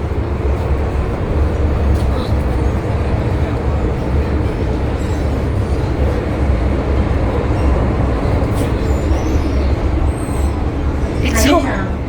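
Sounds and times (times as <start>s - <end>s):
train rumbling at speed: 0.0s - 12.0s.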